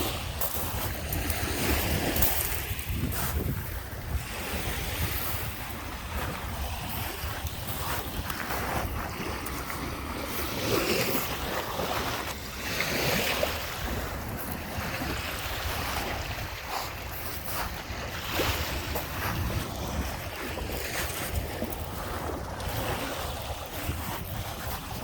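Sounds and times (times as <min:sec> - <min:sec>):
small waves washing onto beach: 0:00.0 - 0:25.0
wind buffeting the microphone: 0:00.0 - 0:25.0.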